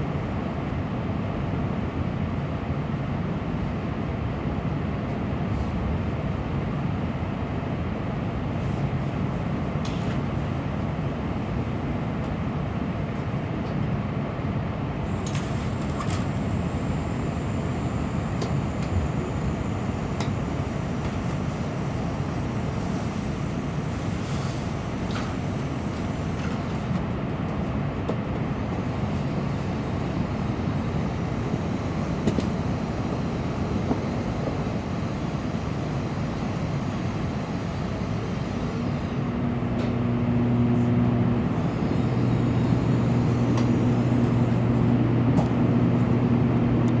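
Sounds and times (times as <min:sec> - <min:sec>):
low steady hum: 0:15.2 - 0:47.0.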